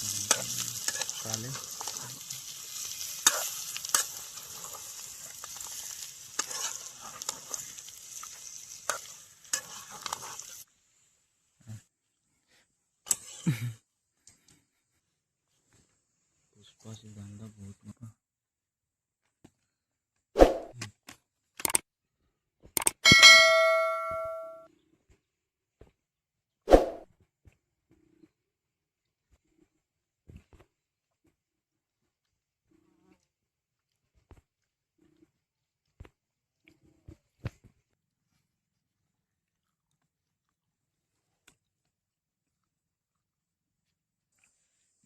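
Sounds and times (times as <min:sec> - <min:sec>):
curry sizzling in a pan: 0:00.0 - 0:10.7
spoon scraping and knocking pan: 0:06.4 - 0:07.7
struck metal ringing: 0:23.0 - 0:24.6.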